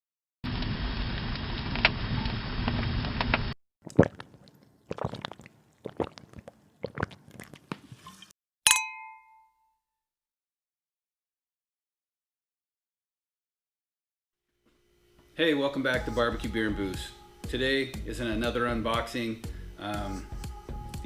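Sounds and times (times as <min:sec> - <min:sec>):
ringing ding: 0:08.7 - 0:09.8.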